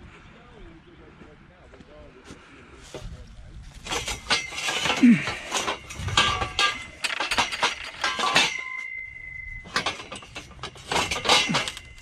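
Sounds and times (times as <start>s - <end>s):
scrap metal clanking and rattling: 2.9s - 12.0s
high ringing tone: 6.2s - 12.0s.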